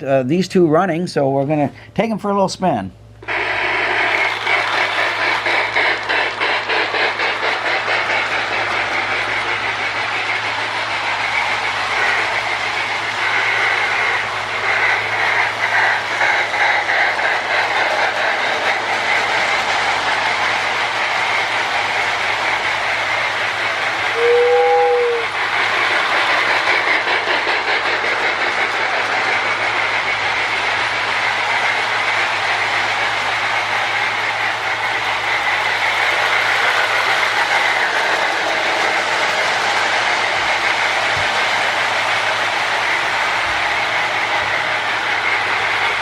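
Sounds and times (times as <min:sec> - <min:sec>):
toy train electronic chugging: 0:03.2 - 0:46.0
wheels rattling on rails: 0:03.2 - 0:46.0
short whistle-like tone: 0:24.1 - 0:25.3.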